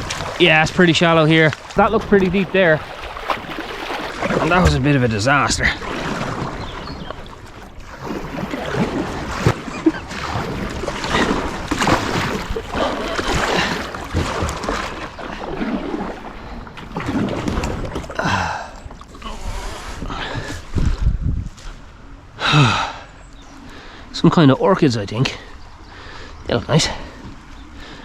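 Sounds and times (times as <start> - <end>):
paddle splashing in water: 0.0 - 21.1.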